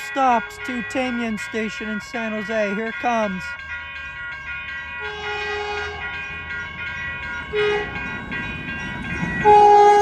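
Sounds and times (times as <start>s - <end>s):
crossing warning bells ringing: 0.0s - 10.0s
train horn blasts: 5.0s - 6.1s, 7.5s - 8.0s, 9.4s - 10.0s.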